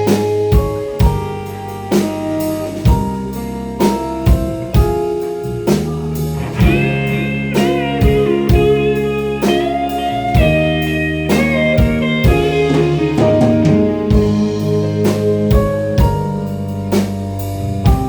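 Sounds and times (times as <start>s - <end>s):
electric guitar lead: 0.0s - 16.6s
held guitar chords: 0.0s - 17.2s
drum kit keeping time: 0.0s - 18.0s.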